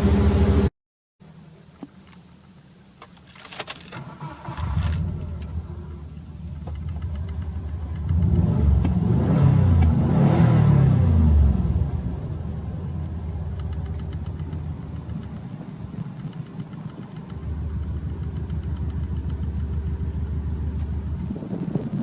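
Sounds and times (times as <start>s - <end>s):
car engine deep exhaust rumble: 4.4s - 22.0s
starter clicks: 13.0s - 19.6s.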